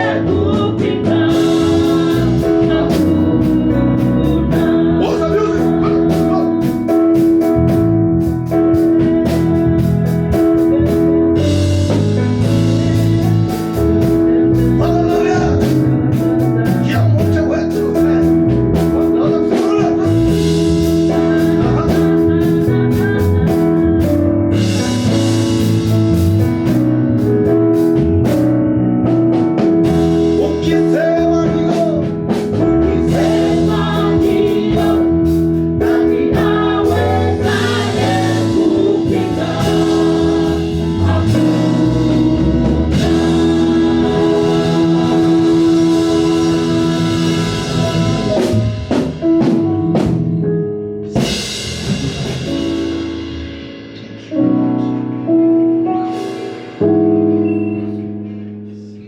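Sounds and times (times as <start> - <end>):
voices singing: 0.0 - 6.7, 32.7 - 49.0
drum kit beat: 0.0 - 50.4, 51.0 - 54.7, 56.0 - 57.7
guitar: 0.0 - 59.0.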